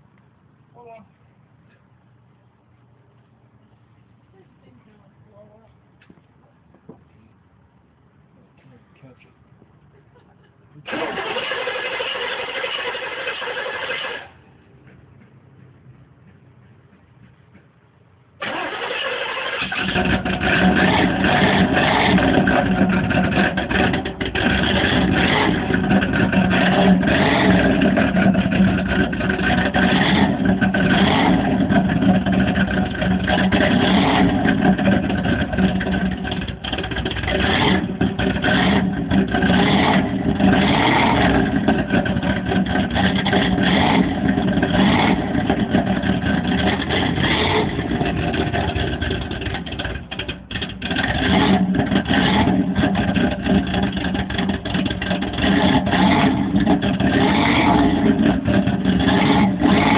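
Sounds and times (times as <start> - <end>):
engine revving over idle: 10.9 - 14.4, 18.4 - 59.9.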